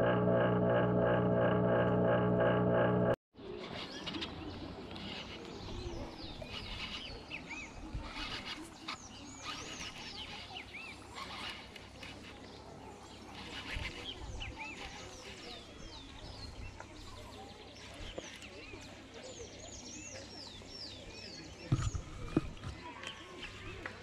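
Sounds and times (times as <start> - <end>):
steady low hum: 0.0 - 3.2
outdoor rustle: 3.4 - 19.3
birds chirping: 3.4 - 24.0.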